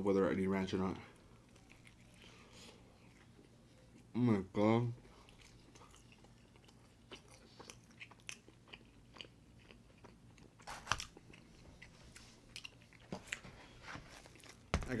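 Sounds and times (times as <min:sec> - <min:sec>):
person chewing food: 0:01.2 - 0:04.1, 0:05.0 - 0:14.8
bite crunch: 0:05.3 - 0:11.6.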